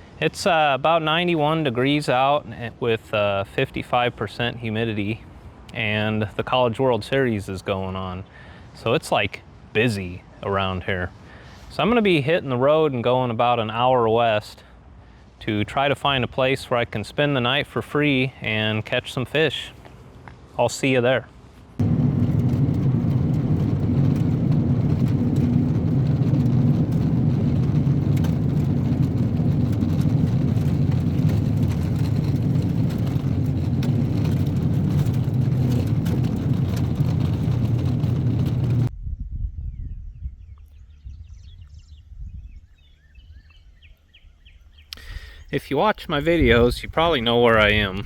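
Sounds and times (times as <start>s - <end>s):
low rumble: 21.7s - 41.5s
vehicle driving at speed: 21.8s - 38.9s.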